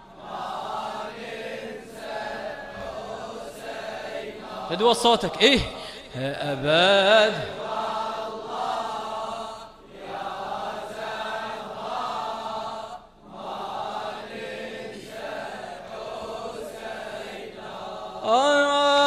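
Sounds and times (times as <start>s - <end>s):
male chorus chanting: 0.0s - 19.0s
man reciting loudly: 4.5s - 7.6s, 18.2s - 19.0s.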